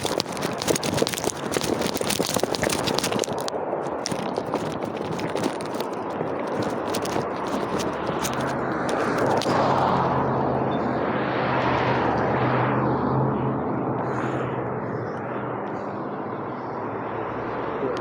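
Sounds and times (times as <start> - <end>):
vehicle passing by: 8.5 - 18.0.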